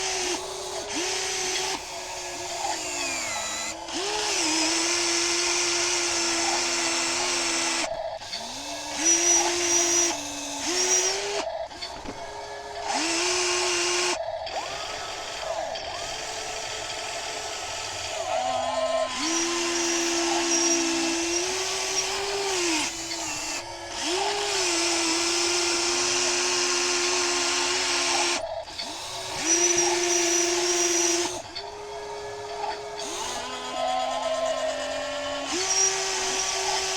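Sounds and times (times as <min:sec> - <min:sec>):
small electric motors whining: 0:00.0 - 0:36.9.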